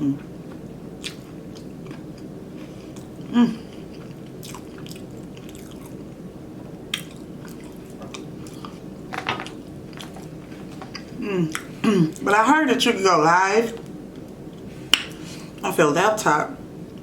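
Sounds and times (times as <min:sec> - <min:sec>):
person chewing: 0:00.0 - 0:06.1, 0:06.9 - 0:08.9
short vocal sound: 0:03.3 - 0:03.7.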